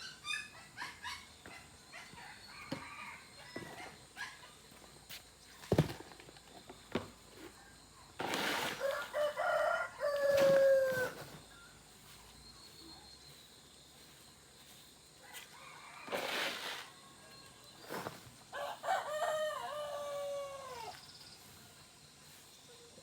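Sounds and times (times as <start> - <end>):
rooster crowing: 2.2 - 3.9, 8.8 - 11.3, 15.2 - 17.3, 18.5 - 21.0.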